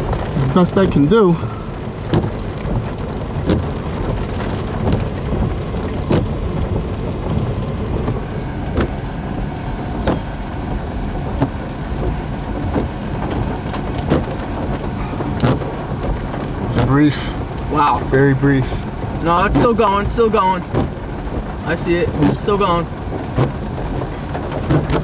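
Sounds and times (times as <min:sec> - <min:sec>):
heavy rain on a vehicle: 0:00.0 - 0:25.0
sharp knocks: 0:02.1 - 0:03.7.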